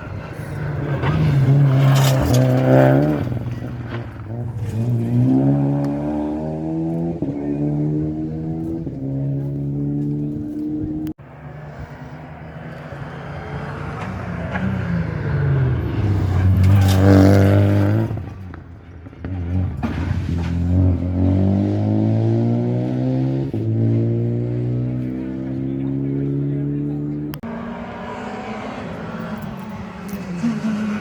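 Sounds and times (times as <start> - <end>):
rally car engine at full throttle: 0.0 - 31.0.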